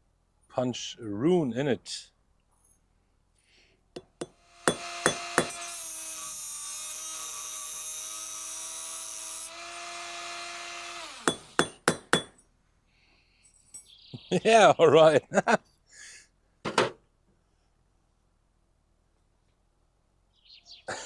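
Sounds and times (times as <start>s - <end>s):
hammer strikes on metal: 4.0s - 5.7s, 11.2s - 12.4s
air pump humming: 4.0s - 12.3s.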